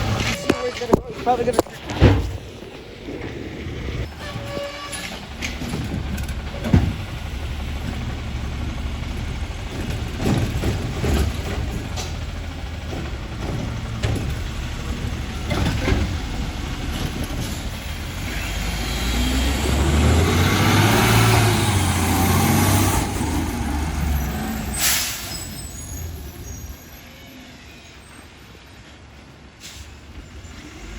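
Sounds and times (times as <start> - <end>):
diesel truck engine revving: 5.1 - 26.7
air brake hiss: 24.8 - 26.8, 29.6 - 30.0.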